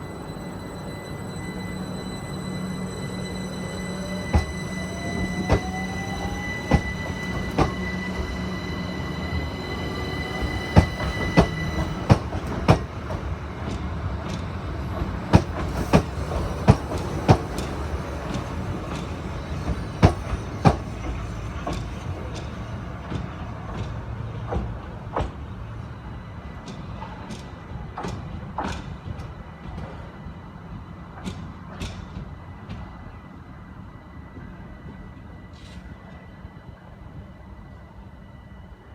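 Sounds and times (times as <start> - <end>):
high whine: 0.0 - 13.2
train rumble: 0.0 - 38.9
train wheels clicking over rail joints: 3.9 - 8.6, 10.2 - 25.6.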